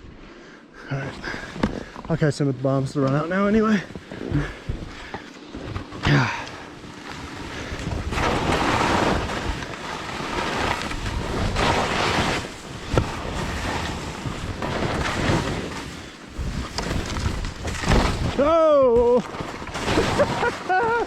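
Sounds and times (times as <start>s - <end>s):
skis hissing on snow: 7.1s - 18.2s, 19.0s - 21.0s.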